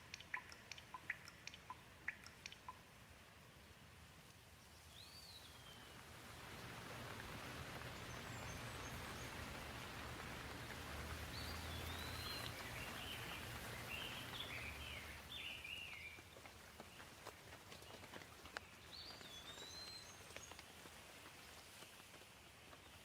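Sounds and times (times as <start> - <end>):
single drops ticking: 0.0 - 2.8
bird chirping: 0.0 - 3.0, 4.6 - 6.0, 11.2 - 17.0, 18.6 - 20.6
gentle rain patter: 0.0 - 23.0.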